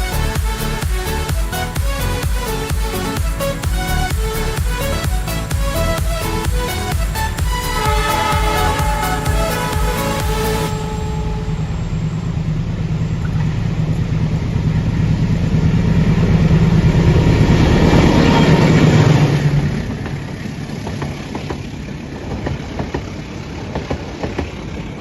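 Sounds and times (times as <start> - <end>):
diesel train engine drone: 0.0 - 25.0
train wheels clicking over rail joints: 15.2 - 25.0.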